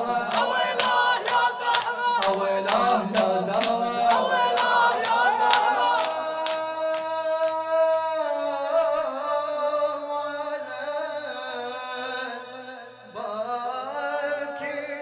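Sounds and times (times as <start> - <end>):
rhythmic chest-beating slaps: 0.0 - 7.8
men singing a long lament note: 0.0 - 15.0.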